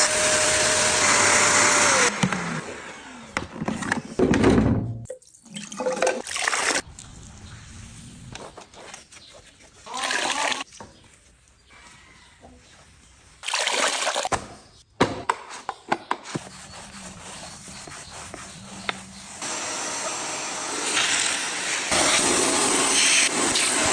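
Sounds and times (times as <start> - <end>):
vacuum cleaner watery rushing: 19.4 - 23.9.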